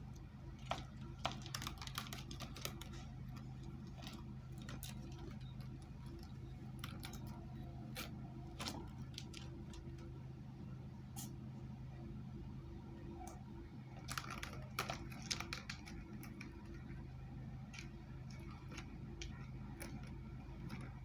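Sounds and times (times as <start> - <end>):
kitten playing with ball clicks: 13.9 - 21.0.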